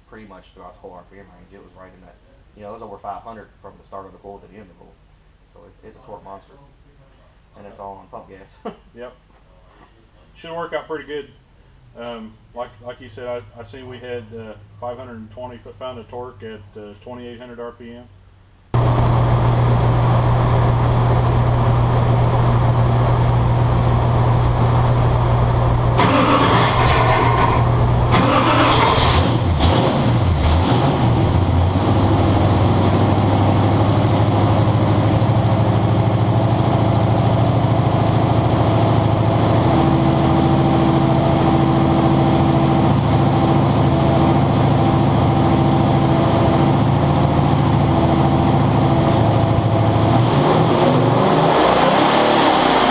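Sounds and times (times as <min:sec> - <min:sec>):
engine running loud on dyno: 0:18.8 - 0:52.9.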